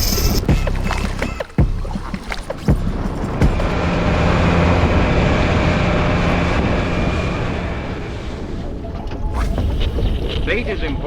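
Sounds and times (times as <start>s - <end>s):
boat engine humming: 0.0s - 10.1s
water noise: 0.0s - 11.0s
wind: 0.0s - 11.0s.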